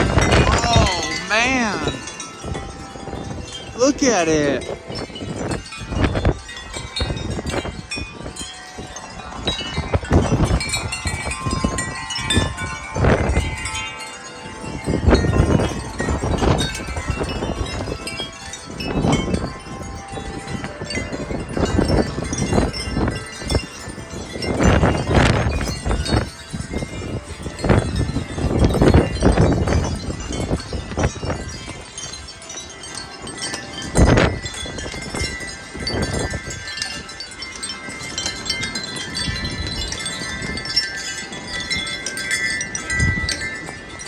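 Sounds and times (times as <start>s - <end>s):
wind buffeting microphone: 0.0s - 44.0s
wind chimes ringing: 0.0s - 44.0s.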